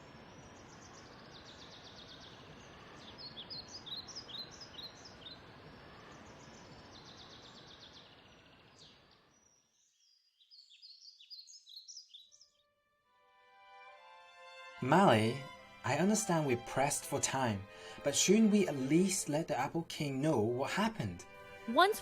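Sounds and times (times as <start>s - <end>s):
background hiss: 0.0s - 9.5s, 14.0s - 22.0s
small birds chirping: 0.0s - 12.6s.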